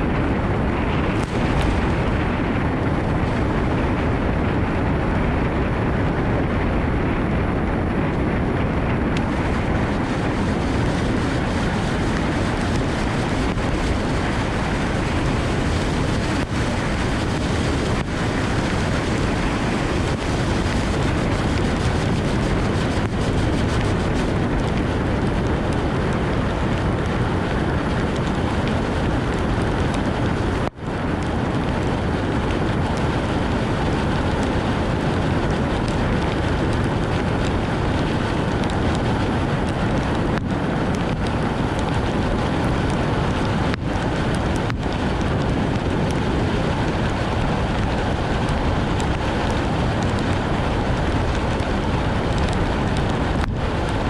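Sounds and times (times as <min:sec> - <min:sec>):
wind rushing: 0:00.0 - 0:06.2, 0:07.0 - 0:30.8
tyres on wet road: 0:09.2 - 0:24.8.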